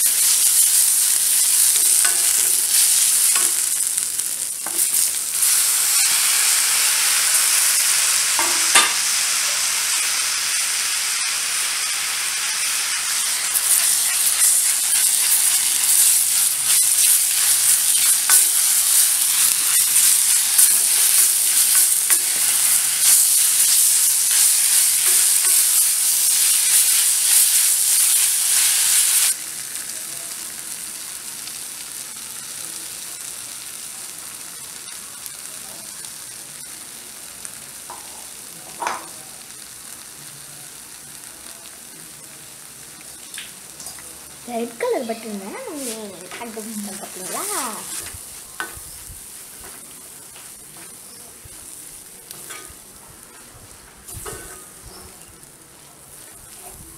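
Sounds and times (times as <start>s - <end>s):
onions sizzling in oil: 0.0s - 56.9s
faint hiss: 19.8s - 56.9s.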